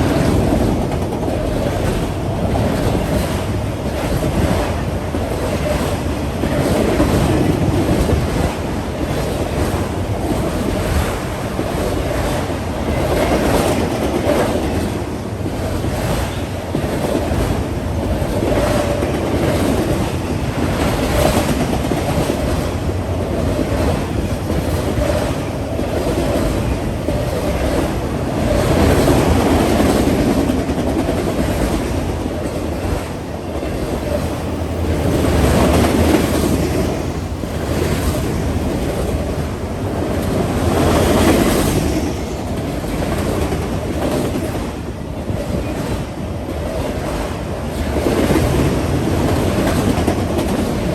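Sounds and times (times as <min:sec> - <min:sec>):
train rolling past: 0:00.0 - 0:50.9.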